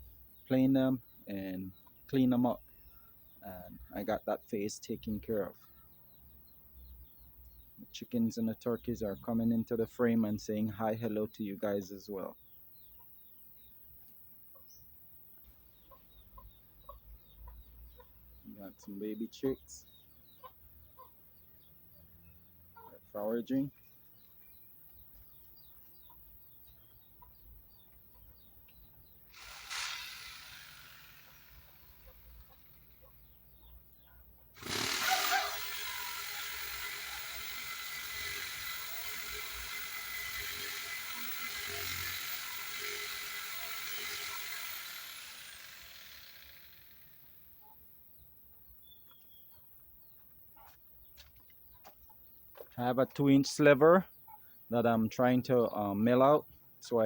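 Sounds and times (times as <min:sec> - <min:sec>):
power saw cutting wood: 0:29.3 - 0:33.4, 0:34.6 - 0:47.6.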